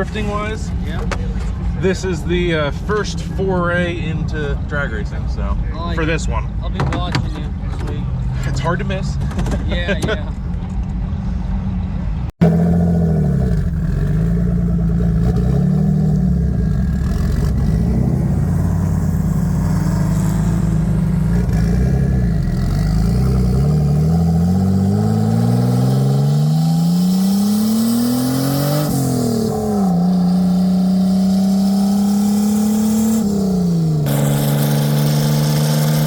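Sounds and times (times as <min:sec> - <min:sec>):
car engine revving: 0:12.4 - 0:36.0.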